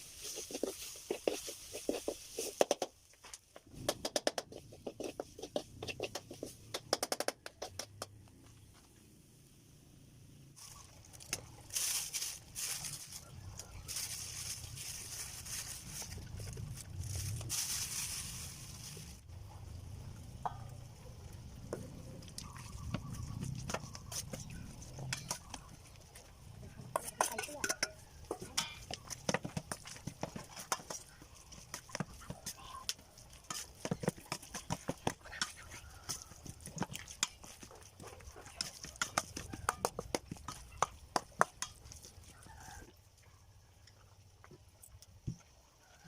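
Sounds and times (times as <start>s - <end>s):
kitchen utensils clicking: 27.0s - 29.0s.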